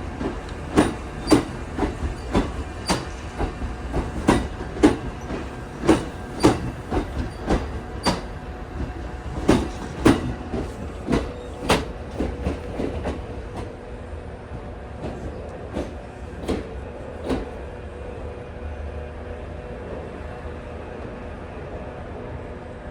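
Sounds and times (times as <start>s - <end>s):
train wheels clacking over rail joints: 0.0s - 13.8s, 15.0s - 17.6s
steady train rumble: 0.0s - 22.9s.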